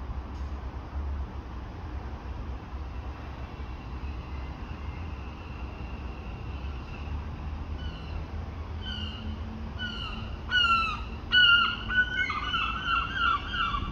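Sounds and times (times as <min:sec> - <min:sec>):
bird calling: 0:07.8 - 0:13.9.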